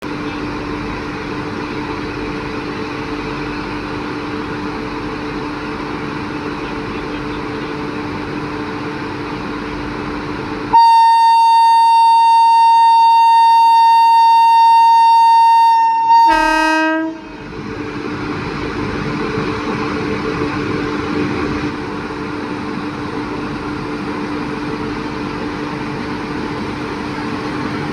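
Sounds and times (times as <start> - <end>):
locomotive rumbling: 0.0 - 27.9
train horn: 10.7 - 17.3.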